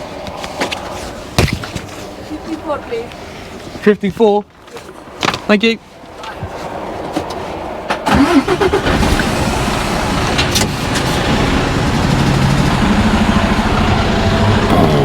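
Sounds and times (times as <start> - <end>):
diesel engine starting and running: 7.8 - 15.0.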